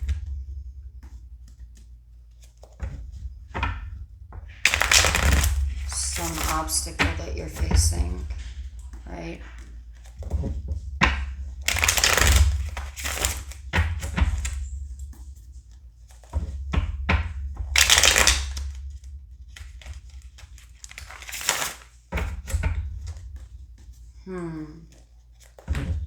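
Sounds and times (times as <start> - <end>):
cards shuffling: 4.6 - 10.4, 11.6 - 14.6, 17.8 - 18.8, 19.6 - 22.3, 24.8 - 25.7.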